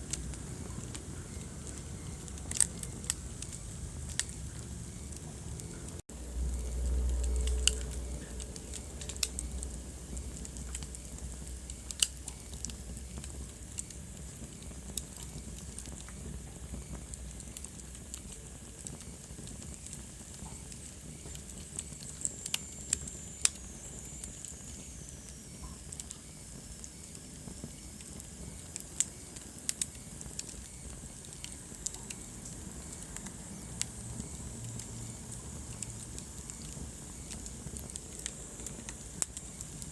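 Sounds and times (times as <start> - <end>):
wood fire crackling: 0.0 - 39.9
low rumble: 0.1 - 11.6.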